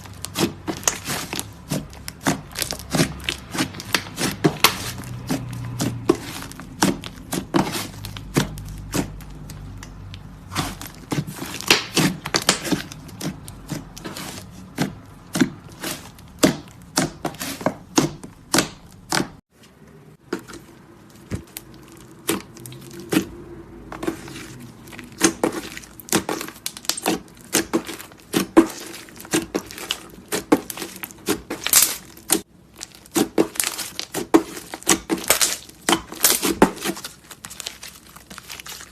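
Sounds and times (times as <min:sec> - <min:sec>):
slime squished by hand: 0:20.4 - 0:38.9.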